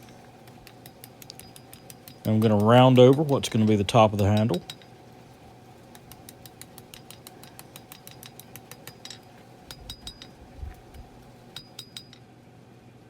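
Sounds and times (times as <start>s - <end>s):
hammer striking steel on anvil: 0.0s - 4.9s, 6.0s - 10.4s.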